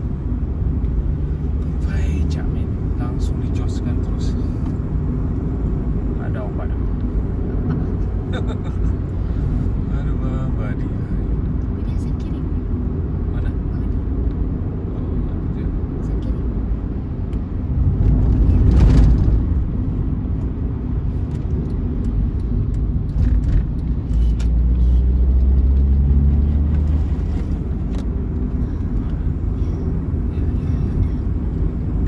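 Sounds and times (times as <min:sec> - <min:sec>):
bus engine and road rumble: 0:00.0 - 0:32.0
deep engine drone: 0:00.0 - 0:32.0
vehicle rushing past: 0:23.1 - 0:28.6.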